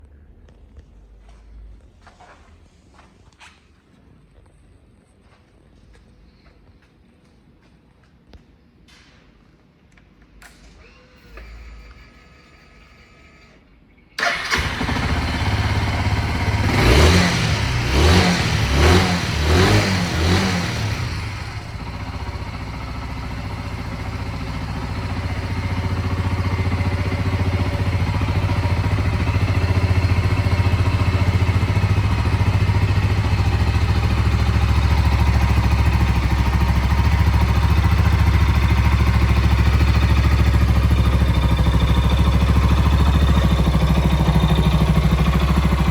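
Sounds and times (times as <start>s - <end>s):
motorcycle engine starting and revving: 14.2s - 45.9s.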